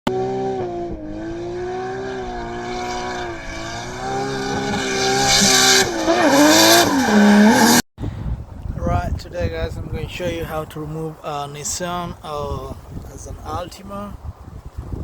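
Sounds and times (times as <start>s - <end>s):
car engine revving high: 0.1s - 7.8s.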